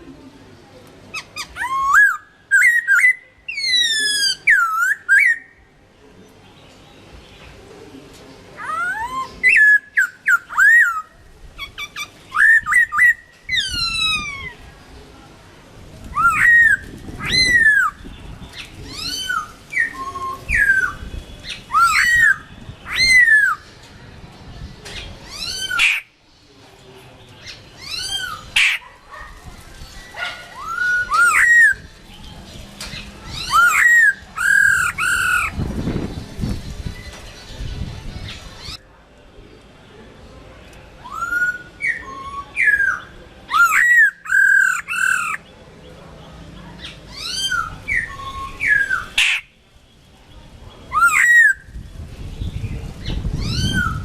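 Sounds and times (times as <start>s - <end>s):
bird singing whistled phrases: 1.4s - 5.6s, 8.6s - 11.1s, 16.1s - 18.0s, 18.6s - 23.8s, 30.0s - 31.9s, 33.3s - 35.5s, 41.0s - 45.4s, 46.8s - 49.5s.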